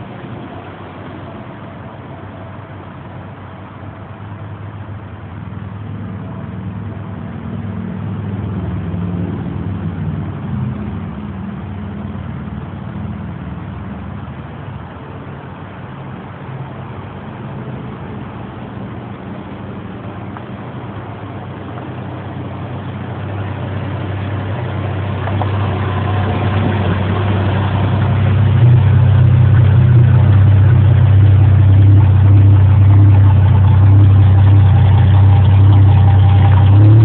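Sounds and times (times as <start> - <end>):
car engine exhaust note: 0.0 - 37.0.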